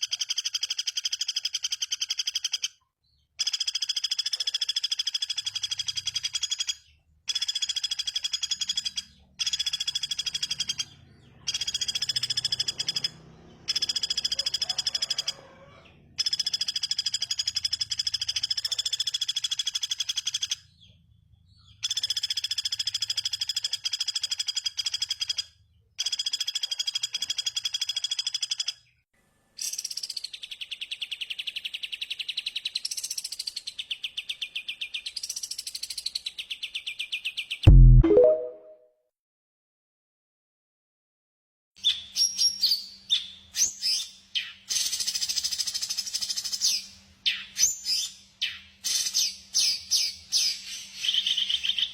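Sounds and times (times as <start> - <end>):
pulsed bird call sweeping in pitch: 37.7 - 38.8.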